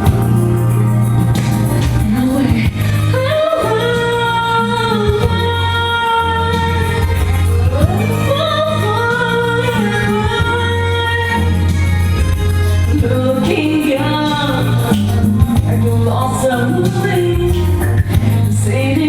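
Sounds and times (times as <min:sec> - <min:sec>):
backing track music: 0:00.0 - 0:19.0
person singing karaoke: 0:00.0 - 0:19.0.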